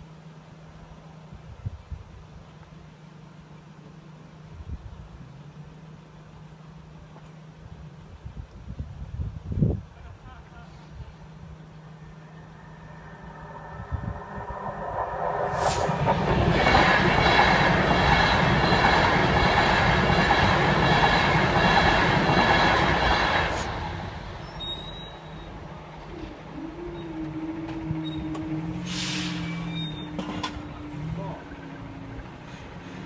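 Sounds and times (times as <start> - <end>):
steady low hum: 10.4 - 22.4
electric train passing at speed: 10.9 - 33.0.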